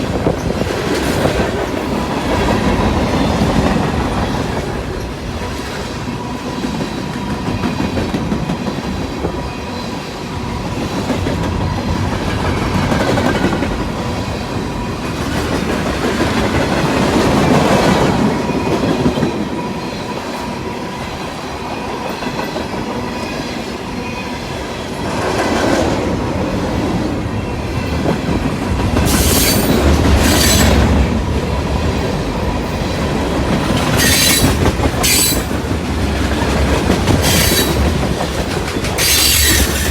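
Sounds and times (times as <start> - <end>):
high wheel squeals: 29.1 - 30.8, 33.9 - 35.6, 37.2 - 37.8, 38.9 - 39.9
train wheels clacking over rail joints: 31.9 - 39.9.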